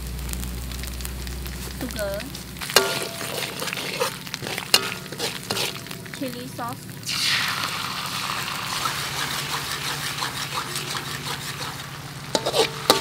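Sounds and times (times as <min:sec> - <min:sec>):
sauce sizzling in hot oil: 0:00.0 - 0:13.0
metal ladle clinking on wok: 0:02.7 - 0:06.2, 0:12.4 - 0:13.0.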